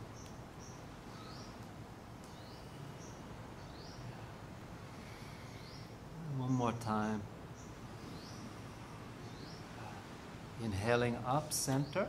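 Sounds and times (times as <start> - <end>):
bird chirping: 0.0 - 1.6, 2.2 - 4.3, 5.2 - 6.8, 7.5 - 10.1
low steady hum: 0.0 - 12.0.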